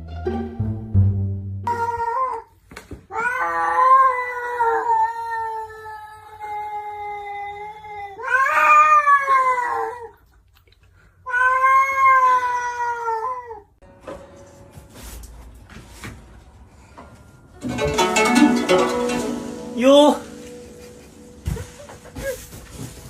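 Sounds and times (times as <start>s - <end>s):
cat yowling: 3.1s - 10.2s, 11.3s - 13.7s.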